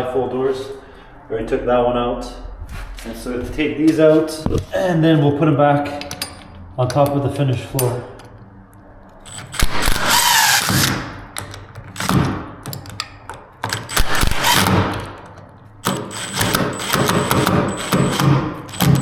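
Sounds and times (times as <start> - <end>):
cordless drill running: 15.9 - 19.0.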